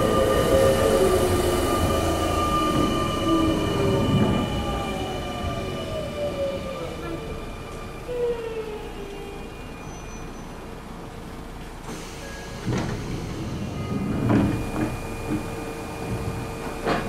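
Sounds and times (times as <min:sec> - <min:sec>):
clunks and knocks: 0:16.1 - 0:17.0.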